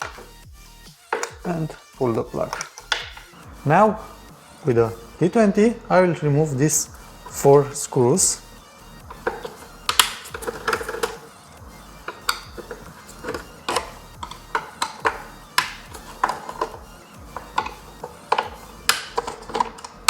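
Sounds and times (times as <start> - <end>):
screwdriver clicking on plastic: 9.1 - 11.2, 12.0 - 20.0.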